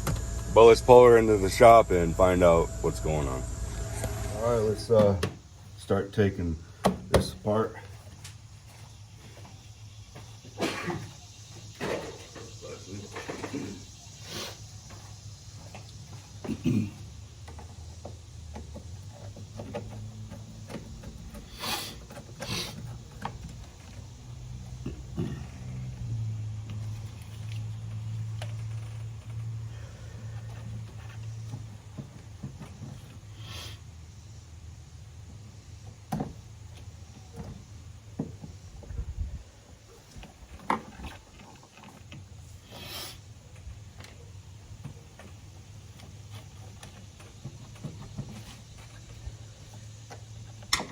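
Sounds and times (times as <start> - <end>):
short rush of noise: 0.0 - 5.1
low steady hum: 0.0 - 5.3
short hissing rasps: 12.6 - 14.8, 21.3 - 23.2, 33.3 - 34.0, 42.4 - 43.5.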